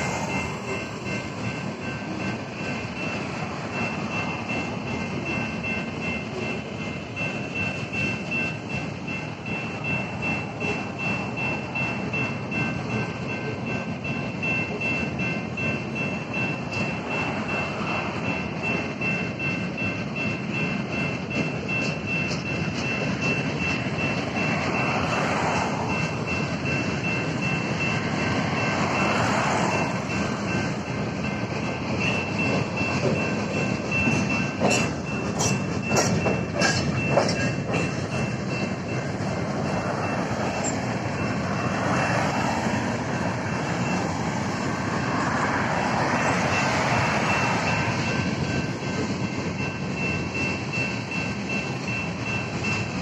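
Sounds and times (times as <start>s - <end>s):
crossing bell ringing: 0.0s - 53.0s
freight train rumbling: 0.0s - 53.0s
wheel clacks over rail joints: 20.9s - 53.0s.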